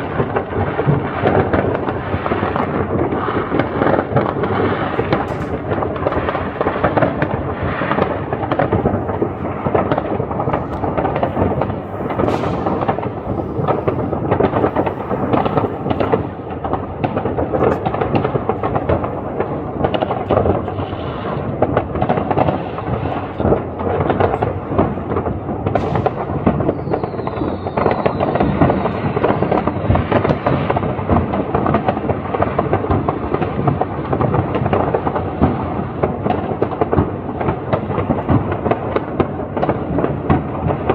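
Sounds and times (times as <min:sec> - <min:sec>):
firework whistle: 0:00.0 - 0:23.4, 0:24.2 - 0:30.9
fireworks bangs and crackling: 0:00.0 - 0:40.9.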